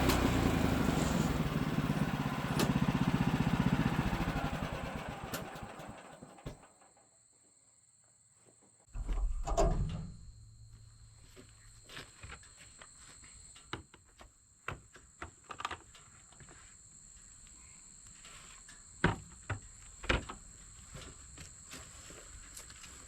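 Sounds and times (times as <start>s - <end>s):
knocks and clunks: 9.0s - 10.3s.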